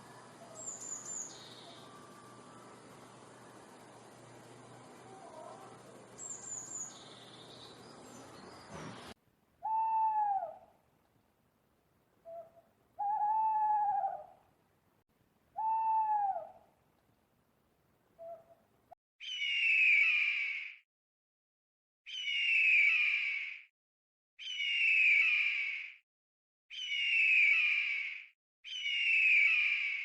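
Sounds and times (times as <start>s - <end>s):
owl hooting: 9.6s - 10.7s, 12.2s - 14.4s, 15.6s - 16.7s, 18.2s - 18.6s, 19.2s - 20.8s, 26.7s - 30.0s
high bird chirps: 19.2s - 20.7s, 22.1s - 23.5s, 24.4s - 25.7s, 26.7s - 30.0s
harsh falling bird call: 26.7s - 30.0s.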